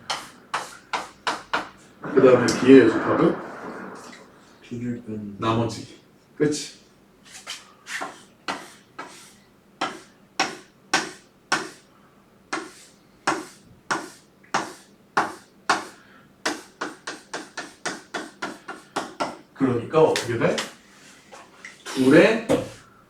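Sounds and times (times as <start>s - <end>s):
pen strokes scratching paper: 12.6s - 15.5s.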